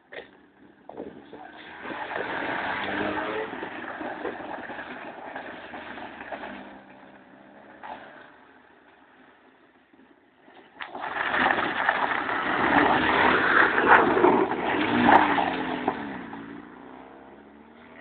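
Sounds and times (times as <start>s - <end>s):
car engine revving hard: 1.5s - 8.2s, 11.3s - 18.0s.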